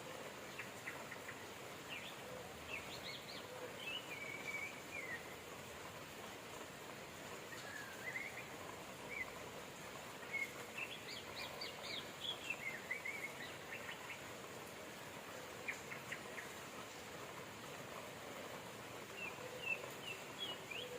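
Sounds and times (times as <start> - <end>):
steady rain hiss: 0.0 - 20.9
small birds chirping: 7.4 - 17.8, 18.4 - 20.9.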